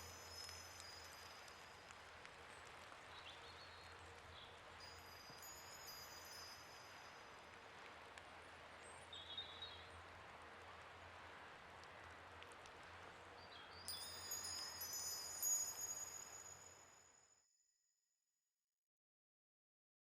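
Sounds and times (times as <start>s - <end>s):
high ringing chimes: 0.0s - 1.8s, 4.8s - 7.3s, 13.9s - 17.1s
faint steady hiss: 0.0s - 17.2s.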